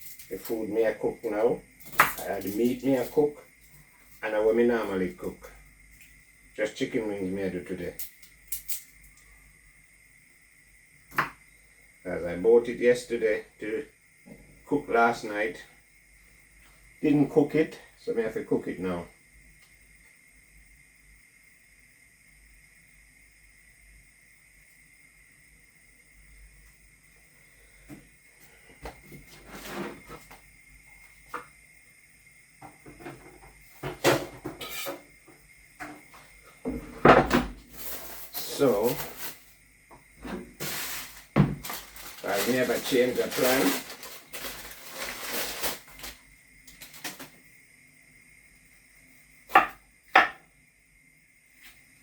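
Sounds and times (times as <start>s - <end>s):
knocks and clicks of objects set down: 32.6s - 34.7s, 41.3s - 41.8s
kitchen clatter: 32.9s - 35.1s.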